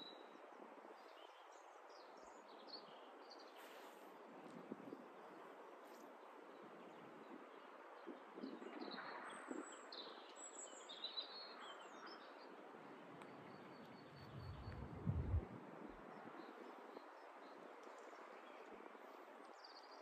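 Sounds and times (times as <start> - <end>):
low rumble: 14.2 - 15.6.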